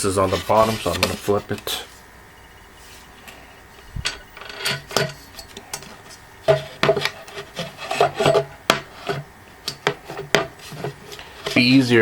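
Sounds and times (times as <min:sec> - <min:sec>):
wood and steel knocking and scraping: 0:04.0 - 0:11.7.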